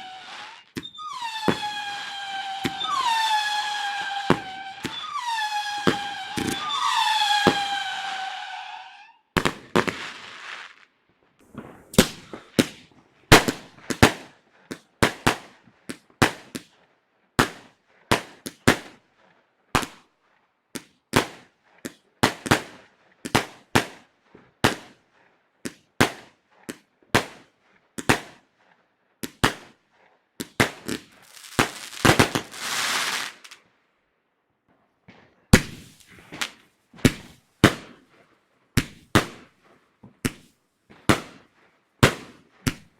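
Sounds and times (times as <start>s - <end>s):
fireworks bangs: 0.0s - 10.7s, 30.5s - 33.6s.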